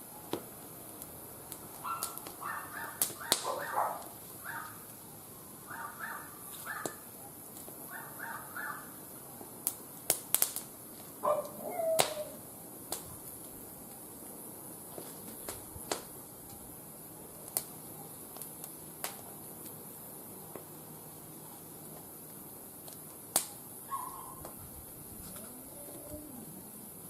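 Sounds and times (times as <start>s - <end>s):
wood fire crackling: 0.0s - 27.0s
animal calling: 11.3s - 12.4s, 25.3s - 26.8s.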